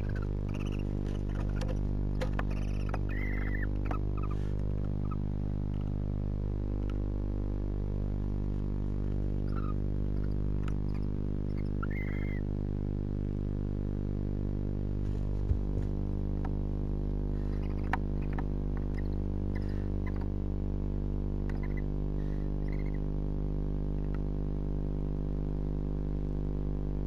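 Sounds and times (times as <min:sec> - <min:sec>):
faint owl chirps: 0:00.0 - 0:05.3, 0:09.4 - 0:12.5, 0:17.4 - 0:20.4, 0:21.5 - 0:23.1
owls scratching and clicking: 0:00.0 - 0:06.0, 0:09.4 - 0:12.4, 0:17.4 - 0:20.3, 0:21.5 - 0:21.9
electrical hum: 0:00.0 - 0:27.0.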